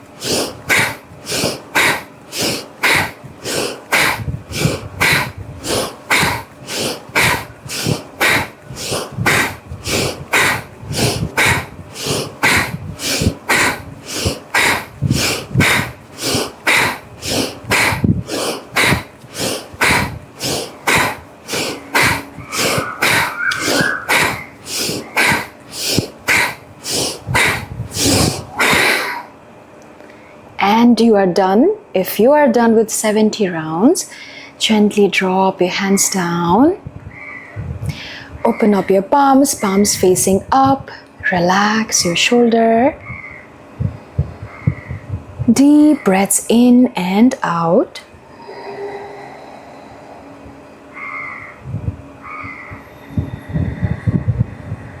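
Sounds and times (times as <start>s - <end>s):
rapid forceful nose breathing: 0.0s - 29.3s, 37.6s - 38.4s, 43.5s - 45.9s, 48.1s - 50.9s, 51.7s - 55.0s.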